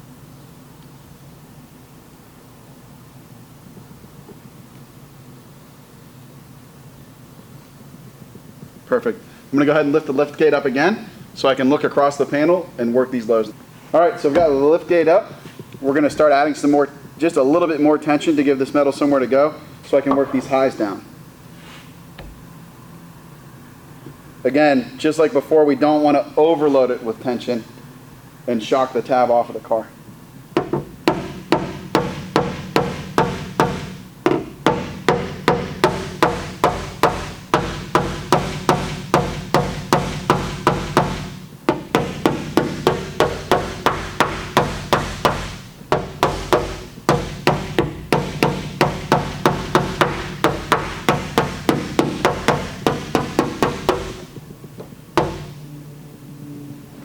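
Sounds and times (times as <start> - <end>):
hammer tapping on steel: 30.6 - 55.6.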